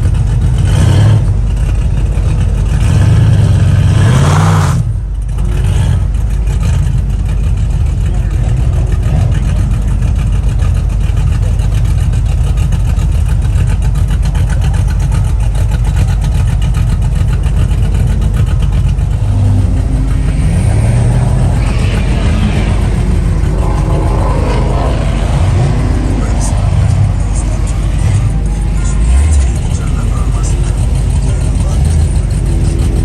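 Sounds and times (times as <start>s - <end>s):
car engines revving: 0.0s - 33.0s
voices: 5.3s - 33.0s.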